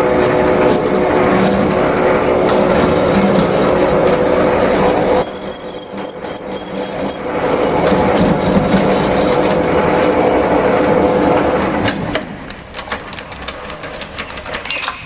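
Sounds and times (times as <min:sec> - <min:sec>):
grinding cutting noise: 0:00.0 - 0:12.0
metal lathe humming: 0:00.0 - 0:12.0
thin high squeal: 0:00.4 - 0:11.3.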